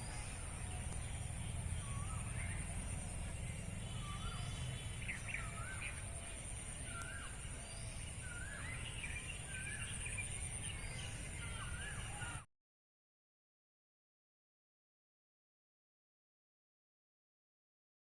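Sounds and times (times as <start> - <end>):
birds calling: 0.0 - 12.4.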